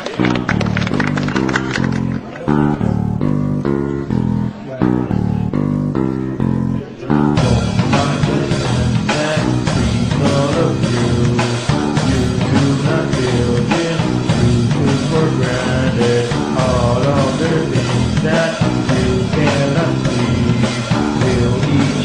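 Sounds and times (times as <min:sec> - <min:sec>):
loud rock music: 0:00.3 - 0:22.0.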